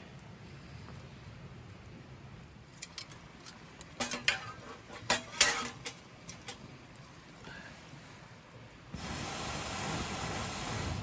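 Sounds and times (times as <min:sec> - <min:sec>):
utensils clattering on plate: 0:04.0 - 0:06.6.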